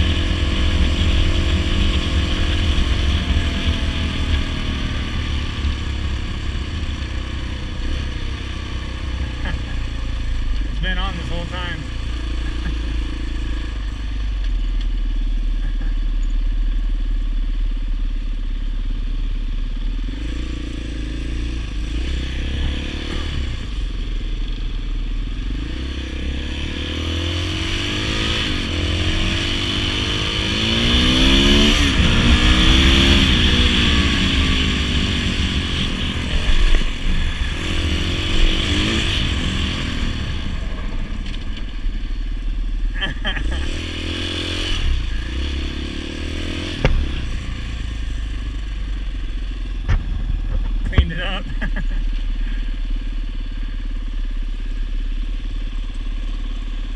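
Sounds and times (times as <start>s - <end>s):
dirt bike engine revving: 0.0s - 13.8s, 20.0s - 24.5s, 25.3s - 49.0s, 49.7s - 53.1s
sharp knocks: 46.8s - 47.3s.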